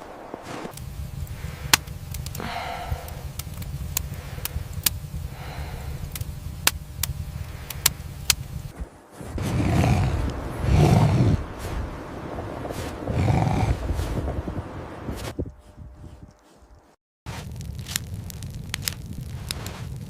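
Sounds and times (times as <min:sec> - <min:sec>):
sharp cracks: 0:00.0 - 0:08.7, 0:17.3 - 0:20.0
low rumble: 0:00.8 - 0:20.0.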